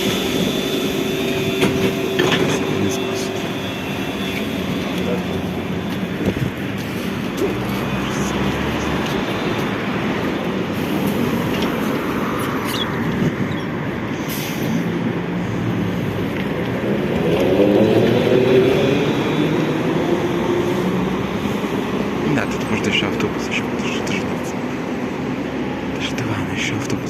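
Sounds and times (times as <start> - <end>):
humming motor whine: 0.0 - 9.3
trolleybus road rumble: 0.0 - 27.0.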